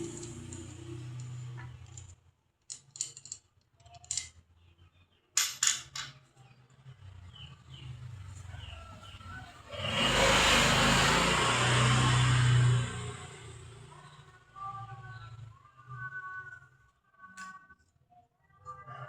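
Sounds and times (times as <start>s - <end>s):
hard objects clicking: 0.0s - 4.4s.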